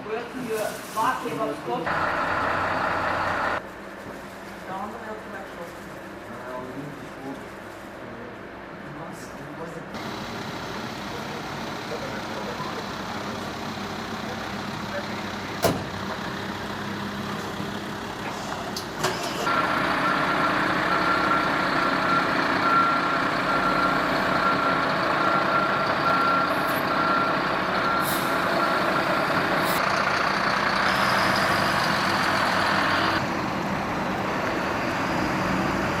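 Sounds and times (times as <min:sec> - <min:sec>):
fire engine running: 0:00.0 - 0:08.8, 0:09.9 - 0:36.0
reversing beeper: 0:20.0 - 0:29.7.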